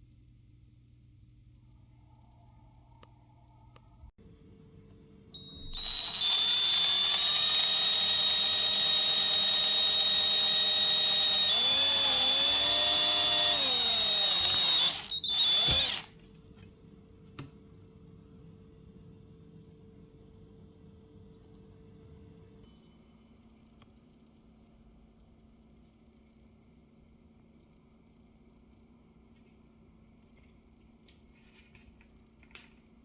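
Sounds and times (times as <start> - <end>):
power drill whining: 5.4 - 16.1.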